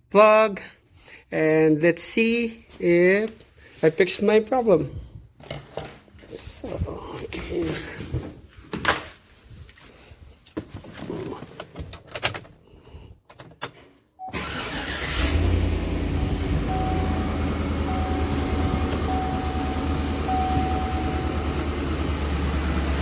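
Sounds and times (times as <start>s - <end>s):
car engine starting and idling: 14.3s - 23.0s
high steady tone: 15.7s - 22.5s.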